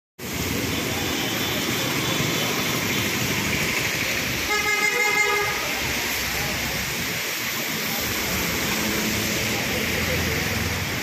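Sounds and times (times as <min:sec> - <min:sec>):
heavy rain on a street: 0:00.2 - 0:11.0
vehicle horn: 0:04.4 - 0:05.7.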